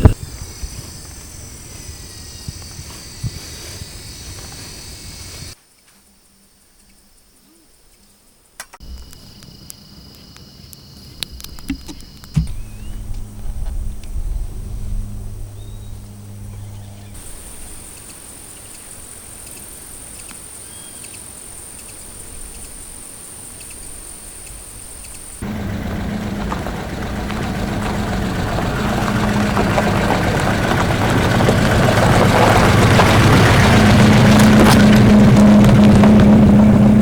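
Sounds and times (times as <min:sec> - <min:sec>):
car engine running: 0:11.4 - 0:18.0, 0:25.4 - 0:37.0
high-pitched whine: 0:11.5 - 0:17.7.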